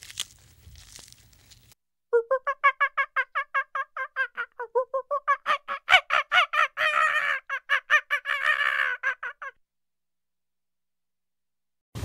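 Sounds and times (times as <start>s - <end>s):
bird calling in rapid notes: 5.1s - 9.6s.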